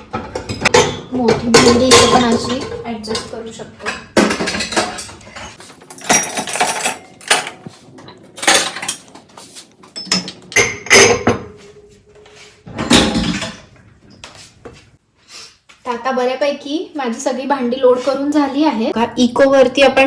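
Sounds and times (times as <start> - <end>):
dishes clattering into racks: 0.0 - 9.3, 9.9 - 11.8, 12.6 - 14.2.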